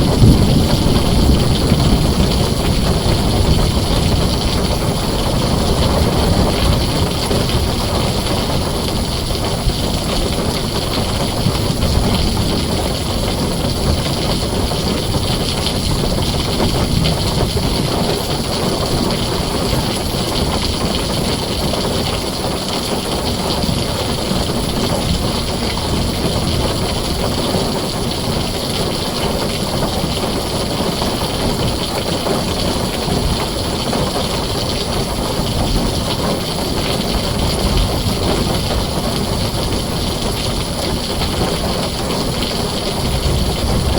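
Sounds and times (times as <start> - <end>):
deep low rumble: 0.0 - 7.8, 42.9 - 43.9
heavy rain on a tin roof: 0.0 - 43.9.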